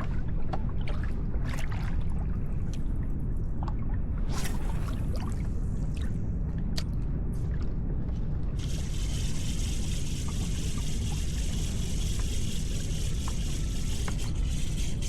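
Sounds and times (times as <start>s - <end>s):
water trickling and lapping: 0.0s - 6.2s, 7.4s - 15.0s
wind rumble on microphone: 0.0s - 15.0s
hiss of moving water: 8.6s - 15.0s.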